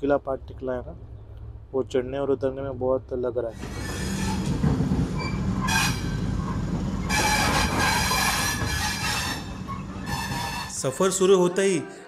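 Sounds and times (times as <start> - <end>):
train wheels rumbling on rail: 3.4 - 10.8
metallic wheel squeal: 3.6 - 4.6, 5.2 - 10.9.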